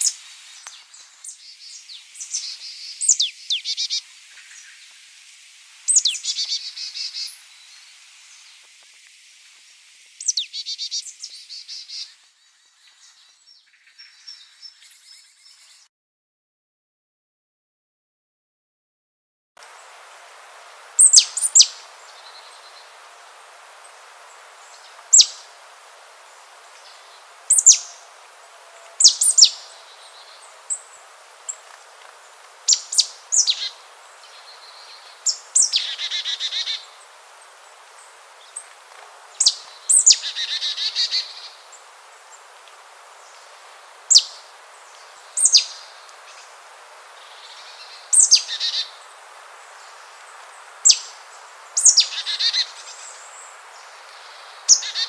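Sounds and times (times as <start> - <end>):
buzzy bird calls: 0.0 - 4.9, 5.8 - 8.6, 10.2 - 13.3, 20.9 - 23.1, 23.7 - 42.5, 43.2 - 55.0
birds calling sharp notes: 21.0 - 23.0, 23.8 - 25.6, 26.2 - 37.2, 39.3 - 42.5, 50.8 - 55.0.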